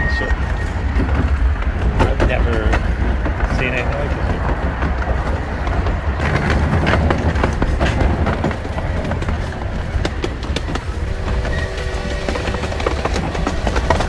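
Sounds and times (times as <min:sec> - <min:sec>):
held tone: 0:00.0 - 0:00.8, 0:11.2 - 0:13.0
train rumbling on track: 0:00.0 - 0:14.0
wheels clacking on rails: 0:00.0 - 0:14.0.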